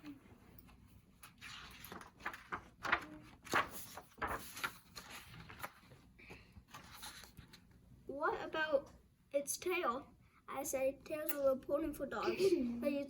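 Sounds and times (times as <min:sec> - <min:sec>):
paper pages rustling: 0:00.6 - 0:07.7.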